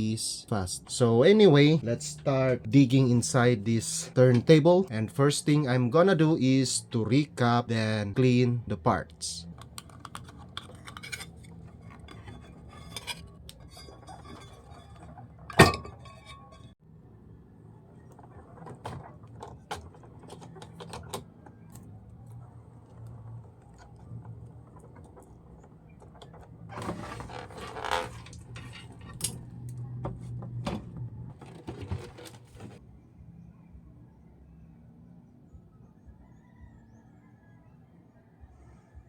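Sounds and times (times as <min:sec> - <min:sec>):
tools and parts clattering: 0:09.9 - 0:16.8, 0:25.1 - 0:29.6, 0:30.8 - 0:32.8
rattling and rustling: 0:23.2 - 0:32.8.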